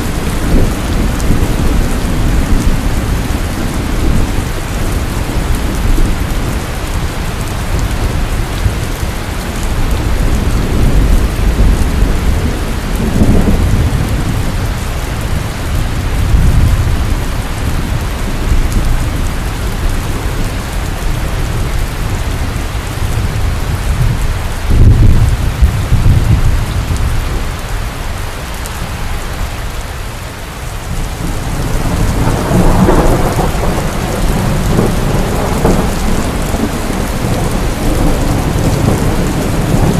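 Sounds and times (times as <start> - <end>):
thunder rumbling: 0.0 - 27.7, 30.8 - 39.9
heavy rain falling: 0.0 - 39.9
sharp thunder clap: 31.8 - 39.9.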